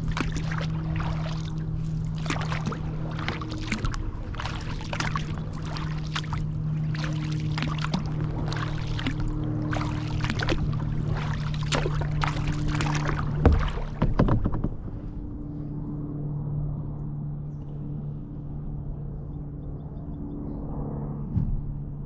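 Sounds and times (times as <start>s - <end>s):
kayak paddle splashing: 0.0s - 15.2s
steady low hum: 0.0s - 22.0s.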